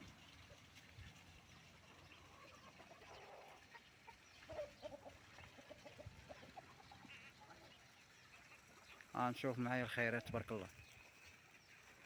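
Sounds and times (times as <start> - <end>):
hens clucking: 1.9 - 8.6.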